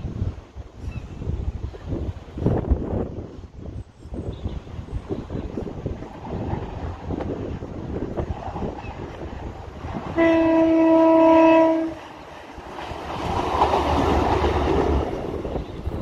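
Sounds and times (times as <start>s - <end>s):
train engine rumble: 0.0s - 16.0s
train wheel noise: 0.0s - 16.0s
train horn: 10.1s - 12.1s.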